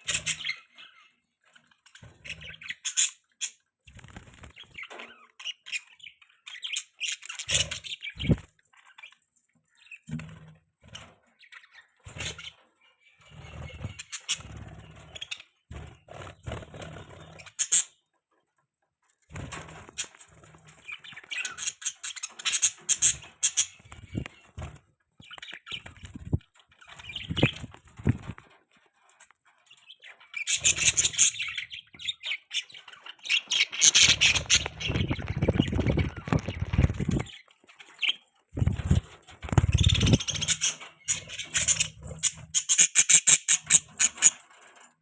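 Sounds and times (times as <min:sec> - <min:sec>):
budgerigars chirping: 0:00.0 - 0:01.2, 0:02.0 - 0:03.6, 0:11.4 - 0:18.0, 0:20.8 - 0:24.6, 0:25.2 - 0:28.3, 0:29.8 - 0:44.4.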